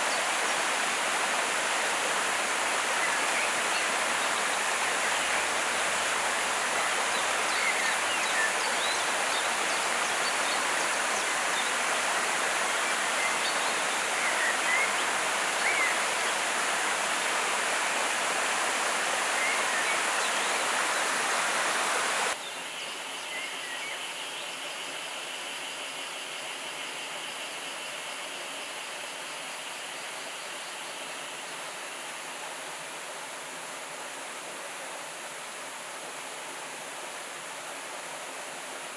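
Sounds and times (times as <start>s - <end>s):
river rushing: 0.0s - 22.4s.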